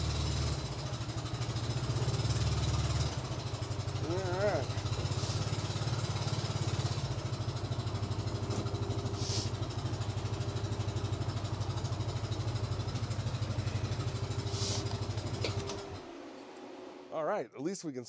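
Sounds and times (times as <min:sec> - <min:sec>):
engine idling: 0:00.0 - 0:16.3
brief hiss: 0:09.2 - 0:09.5, 0:14.5 - 0:14.9.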